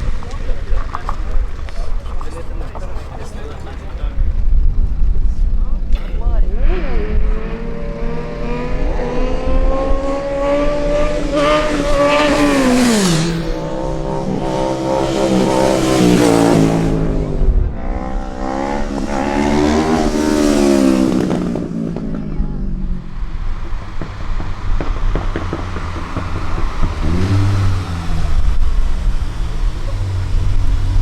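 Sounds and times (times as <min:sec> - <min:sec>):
vehicle engine revving: 0:04.3 - 0:31.0.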